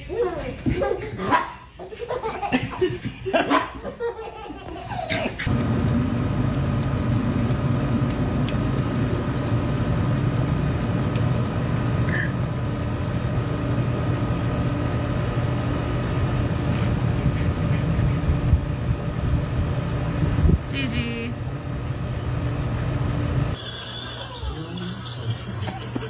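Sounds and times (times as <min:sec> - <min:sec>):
engine drone: 0:05.4 - 0:24.2.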